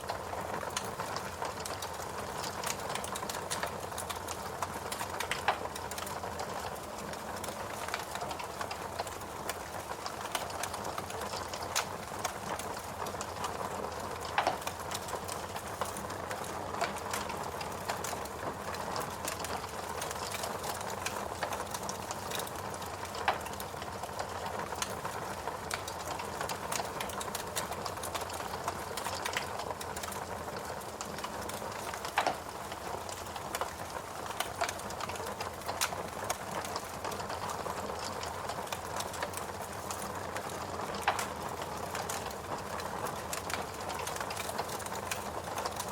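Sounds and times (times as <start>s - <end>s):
fireplace crackling: 0.0s - 45.9s
fire pops: 10.1s - 18.2s, 26.7s - 33.7s, 38.0s - 45.9s.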